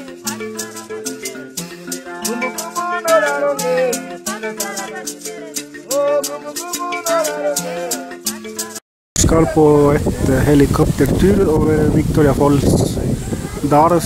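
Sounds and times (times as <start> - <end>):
person singing: 0.0 - 10.7
held chords: 0.0 - 11.4
shaker rhythm: 0.0 - 11.4.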